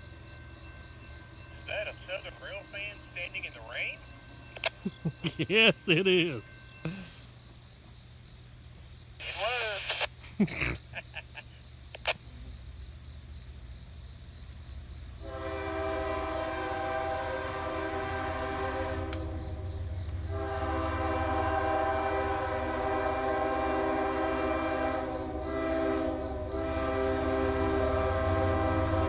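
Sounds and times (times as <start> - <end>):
locomotive air horn: 15.2 - 29.0.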